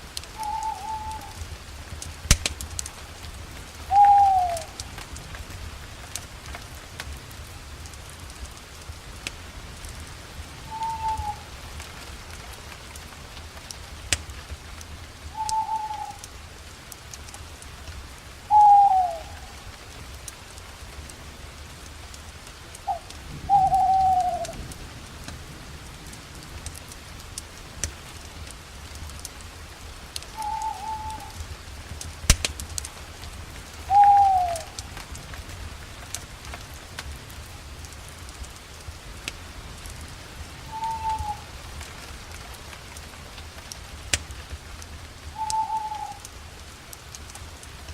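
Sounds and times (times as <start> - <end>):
campfire crackling and popping: 0.0 - 47.9
owl hooting: 0.4 - 1.4, 3.9 - 4.7, 10.7 - 11.5, 15.4 - 16.2, 18.5 - 19.6, 22.9 - 24.6, 30.4 - 31.4, 33.9 - 34.8, 40.7 - 41.5, 45.4 - 46.2.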